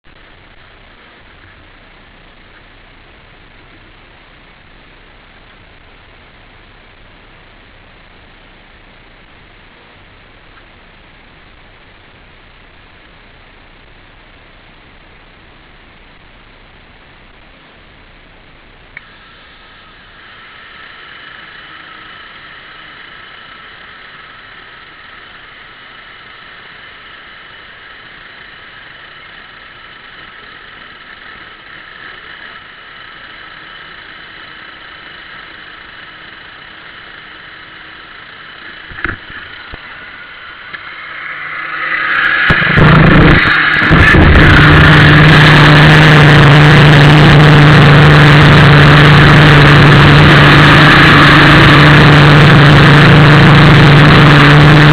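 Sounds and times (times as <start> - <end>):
faint steady hum: 0.0 - 54.9
model boat engine running: 19.0 - 54.9.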